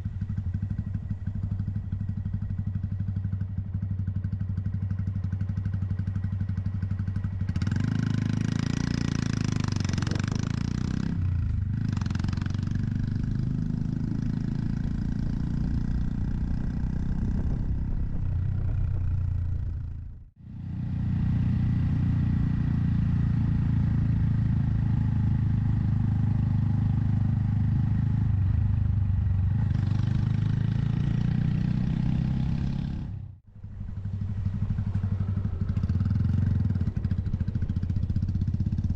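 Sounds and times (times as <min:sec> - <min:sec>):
motorcycle engine running: 0:00.0 - 0:38.9
rushing wind noise: 0:13.0 - 0:20.1.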